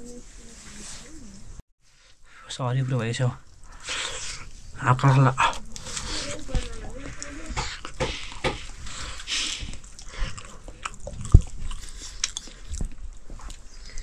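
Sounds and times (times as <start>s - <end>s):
chewing crunches: 3.4s - 14.0s.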